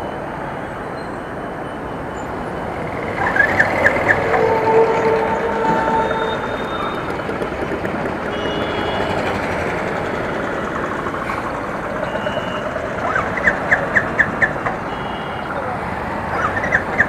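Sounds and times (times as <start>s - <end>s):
rush of passing vehicles: 0.0s - 17.0s
vehicle horn: 3.8s - 7.4s, 8.2s - 9.8s, 14.8s - 15.8s.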